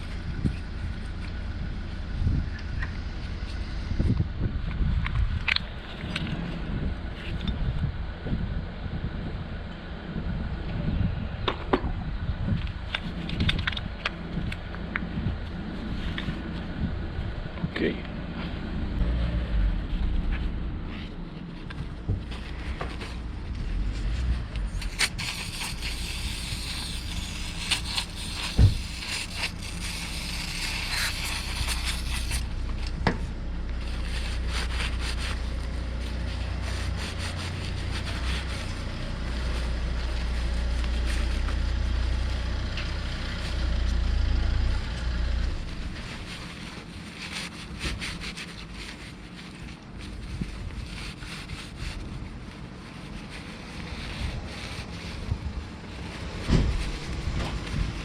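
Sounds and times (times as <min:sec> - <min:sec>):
wind rumble on microphone: 0:00.0 - 0:58.0
scraping and rubbing on metal: 0:18.3 - 0:58.0.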